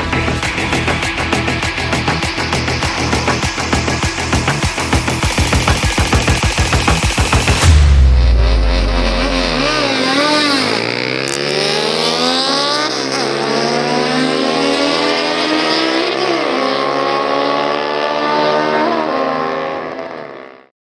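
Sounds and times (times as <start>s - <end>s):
racing motorcycle engine accelerating: 4.3s - 20.5s.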